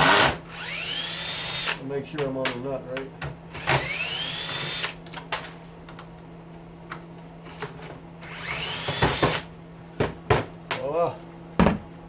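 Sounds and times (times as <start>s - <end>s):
power drill whine: 0.0s - 1.8s, 3.6s - 5.0s, 8.2s - 9.5s.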